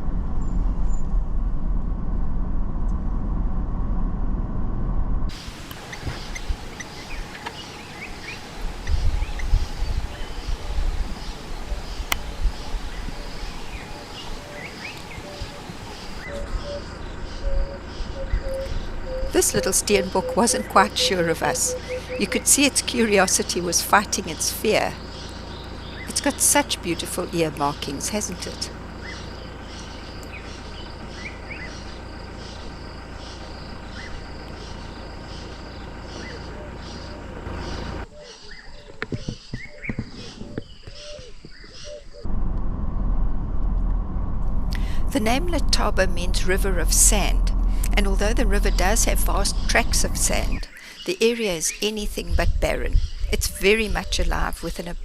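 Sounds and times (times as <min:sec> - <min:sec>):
low rumbles: 0:00.0 - 0:38.1, 0:38.8 - 0:51.0, 0:51.9 - 0:55.0
faint insect hum: 0:05.3 - 0:39.0
short rising bird notes: 0:05.8 - 0:22.7
bird chirps and calls: 0:05.8 - 0:42.3, 0:47.9 - 0:54.8.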